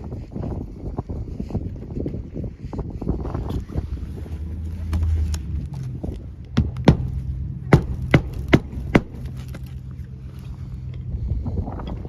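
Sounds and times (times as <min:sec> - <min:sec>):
wind rumble on microphone: 0:00.0 - 0:12.0
sharp knocks: 0:06.6 - 0:09.4.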